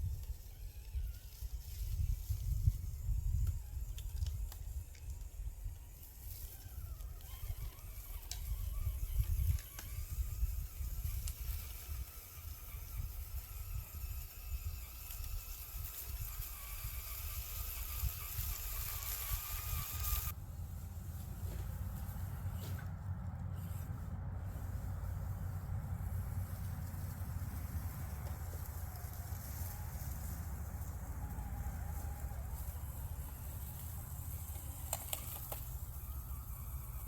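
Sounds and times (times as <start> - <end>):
small electric motor whine: 0.0 - 37.0
wind buffeting microphone: 0.9 - 6.0.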